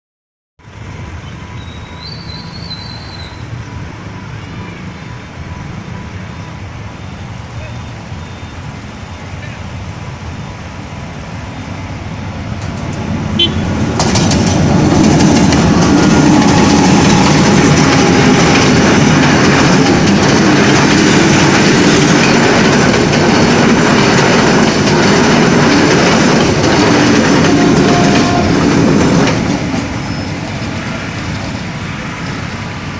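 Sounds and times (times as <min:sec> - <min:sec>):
train wheels clattering on rails: 0:12.4 - 0:32.9.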